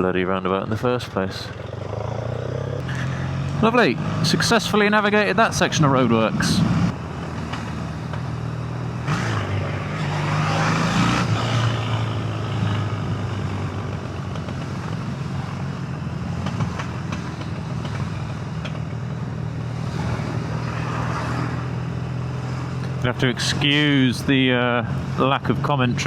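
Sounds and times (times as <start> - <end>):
road and wind noise: 0.0 - 26.0
motorcycle engine running: 1.4 - 26.0.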